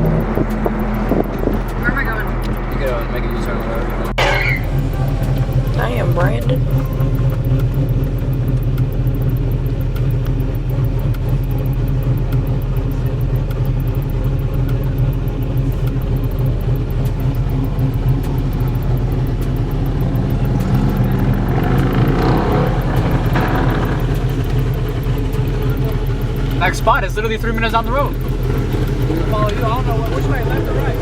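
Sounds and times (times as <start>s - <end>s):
car engine and road noise: 0.0s - 31.0s
engine revving up: 0.0s - 31.0s.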